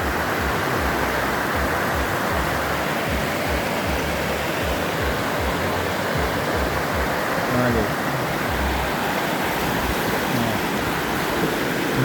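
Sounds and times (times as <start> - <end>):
waterfall and creek water rushing: 0.0 - 12.0.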